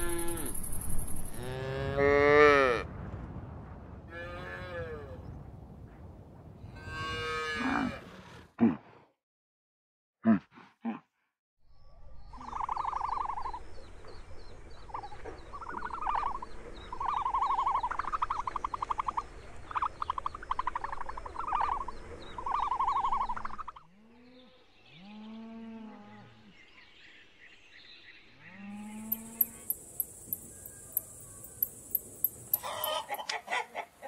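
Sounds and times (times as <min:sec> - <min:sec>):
bird harsh rattling calls: 0:00.0 - 0:01.4, 0:28.9 - 0:33.3
low wind rumble: 0:00.0 - 0:08.1, 0:11.7 - 0:23.8, 0:28.9 - 0:32.9
low rising and falling calls: 0:28.8 - 0:33.2.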